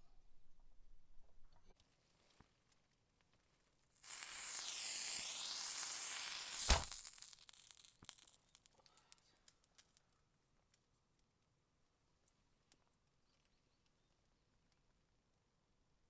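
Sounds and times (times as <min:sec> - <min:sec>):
hissing sizzling noise: 0:04.0 - 0:08.6
sharp thump: 0:06.5 - 0:07.1.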